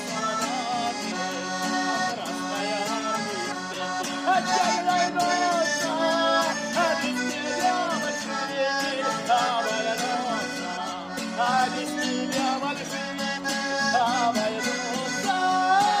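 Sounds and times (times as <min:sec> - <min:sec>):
accordion-like lead melody: 0:00.0 - 0:16.0.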